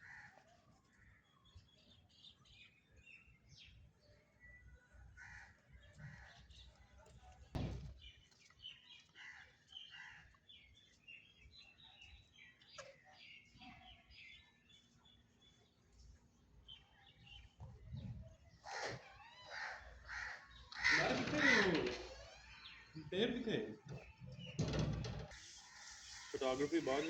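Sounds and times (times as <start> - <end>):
faint birdsong chirps: 0.7 - 27.0
dull thump: 7.6 - 8.0.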